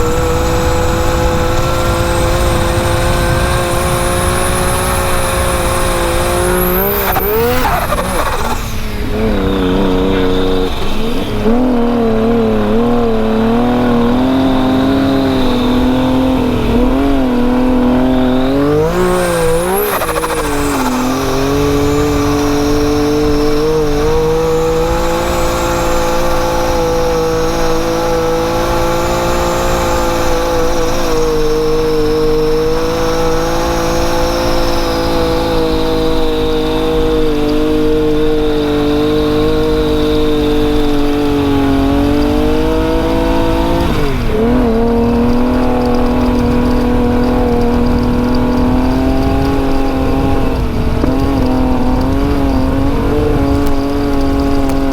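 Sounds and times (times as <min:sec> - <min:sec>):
engine running at high revs: 0:00.0 - 0:54.9.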